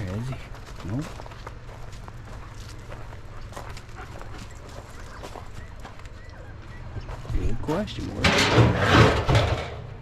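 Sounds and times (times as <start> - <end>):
faint footsteps: 0.0 - 8.2
steady low hum: 0.0 - 8.8.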